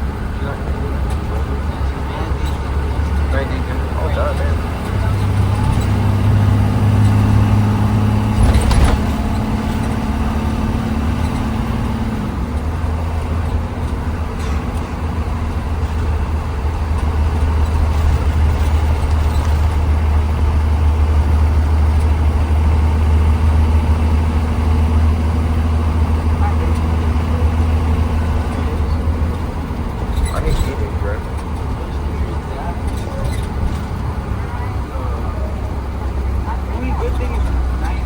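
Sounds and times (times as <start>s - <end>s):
bus engine drone: 0.0s - 38.0s
road noise: 0.0s - 38.0s.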